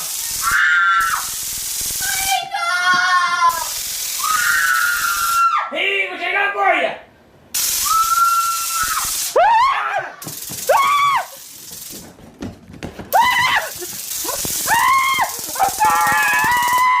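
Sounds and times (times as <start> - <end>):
hiss: 0.0 - 2.4, 3.4 - 5.5, 7.6 - 12.1, 13.2 - 17.0
high-pitched squealing cries: 0.1 - 1.4, 2.0 - 5.7, 7.8 - 11.5, 13.1 - 17.0.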